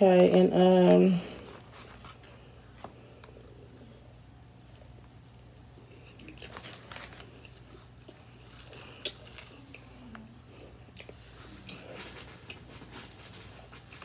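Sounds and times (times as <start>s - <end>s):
person chewing: 5.8s - 14.0s.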